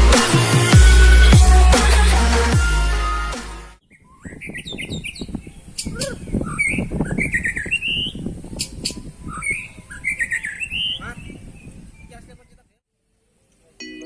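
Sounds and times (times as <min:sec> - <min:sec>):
songbirds singing chirps and whistles: 0:03.8 - 0:12.6.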